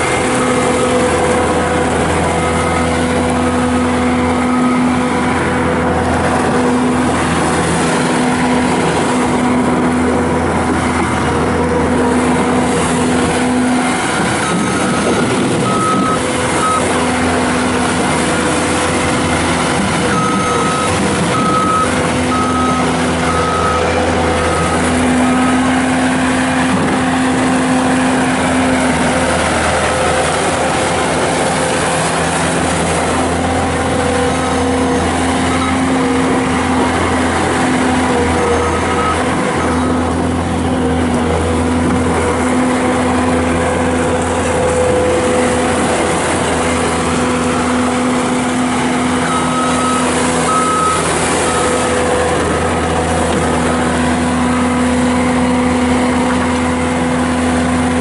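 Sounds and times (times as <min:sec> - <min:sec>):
diesel engine running: 0:00.0 - 0:58.0
backup alarm beeping: 0:14.4 - 0:17.0, 0:20.0 - 0:25.6, 0:49.2 - 0:52.0.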